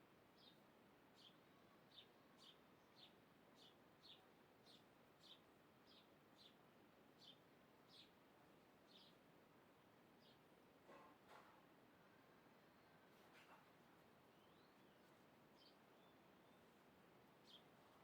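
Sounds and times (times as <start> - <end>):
bird chirping: 14.3 - 16.8, 17.4 - 17.7.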